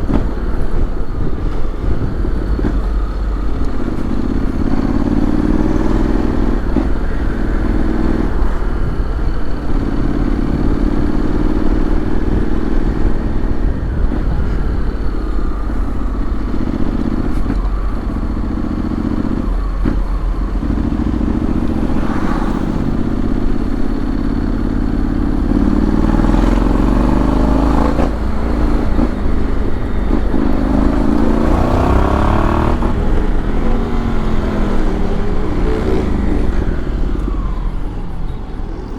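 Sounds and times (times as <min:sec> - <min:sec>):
motorcycle engine accelerating: 0:00.0 - 0:38.9
wind noise on microphone: 0:00.0 - 0:38.9.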